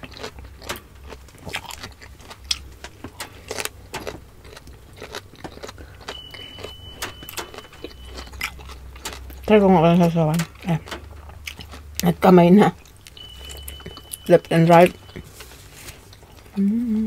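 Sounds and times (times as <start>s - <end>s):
wet chewing and mouth clicks: 0.0s - 15.2s
thin high steady tone: 6.0s - 8.6s, 13.1s - 15.5s.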